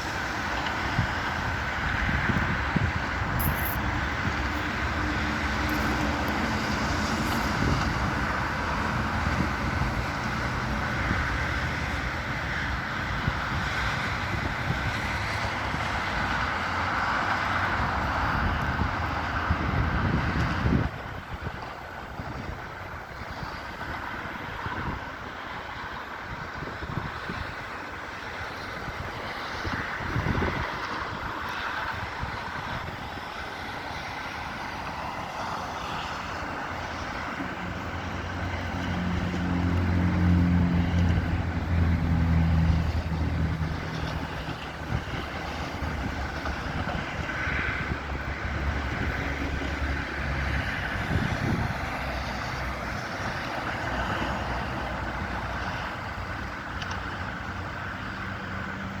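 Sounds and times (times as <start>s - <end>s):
vehicle engine passing: 35.3s - 55.5s.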